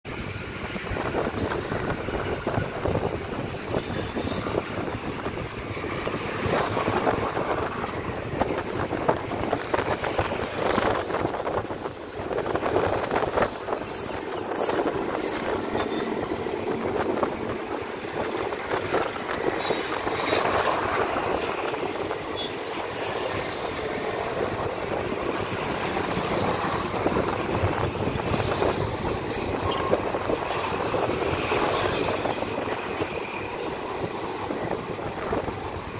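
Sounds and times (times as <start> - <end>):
train wheels rumbling on rails: 0.0 - 35.9
high wheel squeals: 0.2 - 35.9.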